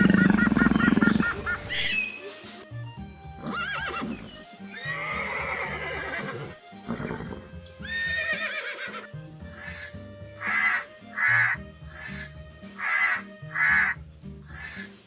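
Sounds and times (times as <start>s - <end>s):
horse whinnying: 0.0s - 2.0s, 3.4s - 9.8s
background music: 0.0s - 15.0s.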